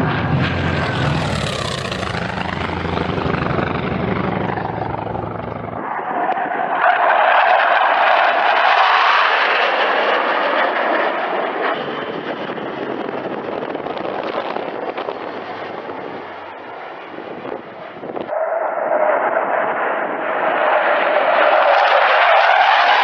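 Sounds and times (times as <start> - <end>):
fighter jets flying low: 0.0 - 23.0.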